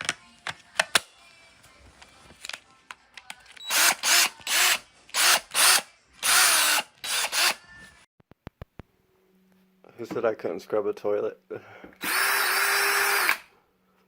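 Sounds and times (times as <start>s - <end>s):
cordless drill whirring: 3.6s - 7.6s, 12.0s - 13.5s.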